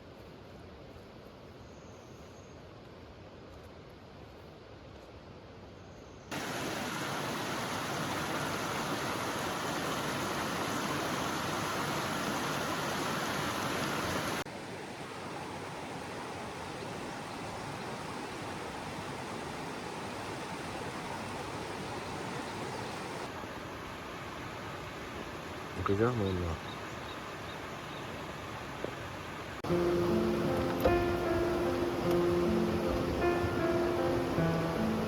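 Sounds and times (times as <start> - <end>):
flowing water rushing: 6.3 - 35.0.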